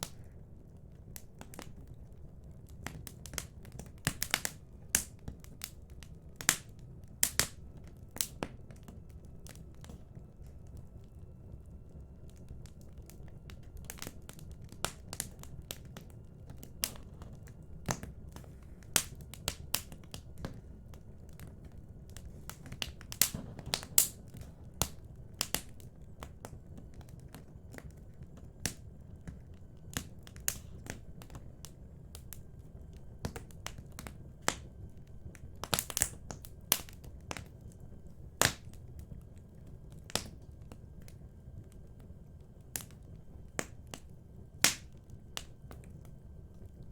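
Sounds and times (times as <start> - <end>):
fire flame rumble: 0.0 - 46.9
wood crackling and popping: 0.0 - 46.9.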